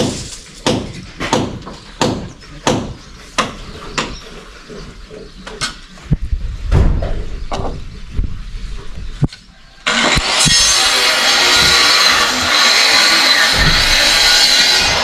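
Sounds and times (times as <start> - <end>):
heavy low thud: 6.1 - 8.4, 13.5 - 15.0.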